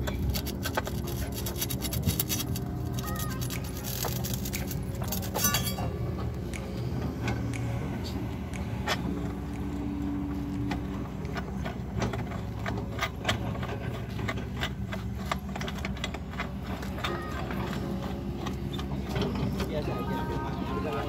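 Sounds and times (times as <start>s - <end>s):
sharp clicks and clinks: 0.0s - 6.2s.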